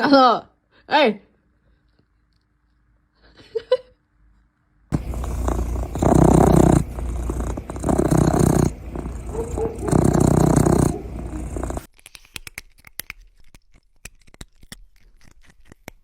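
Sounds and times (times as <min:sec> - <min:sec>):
cat purring loudly: 0:04.9 - 0:11.9.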